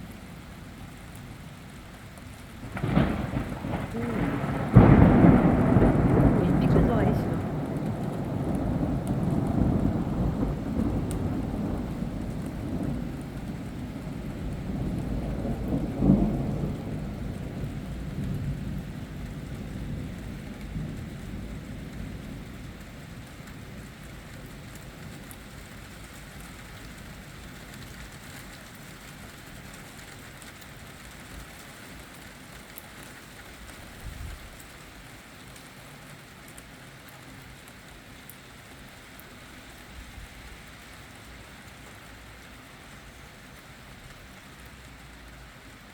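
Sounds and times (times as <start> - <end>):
steady rain: 0.0 - 45.9
thunder rumbling: 2.6 - 22.8
sharp thunder crack: 2.8 - 13.1.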